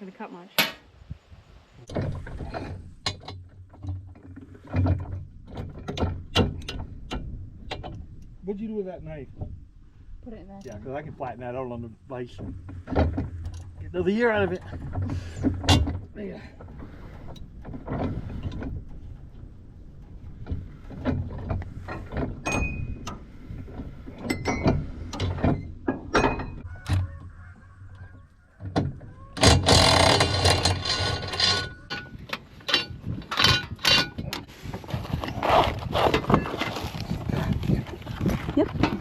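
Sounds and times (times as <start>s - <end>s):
metal tools clinking and knocking: 24.2s - 26.6s, 29.7s - 34.4s.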